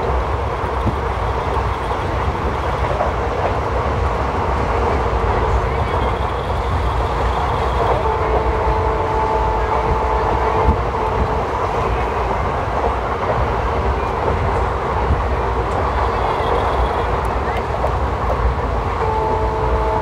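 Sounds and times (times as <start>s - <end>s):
train wheels rumbling on track: 0.0s - 20.0s
held tone: 19.0s - 20.0s.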